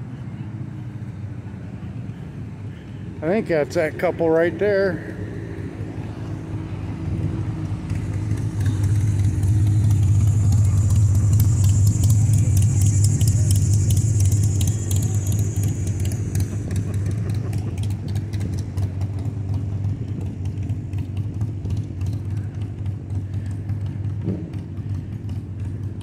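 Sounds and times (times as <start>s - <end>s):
vehicle engine hum: 0.0s - 26.0s
high hiss: 8.8s - 17.2s.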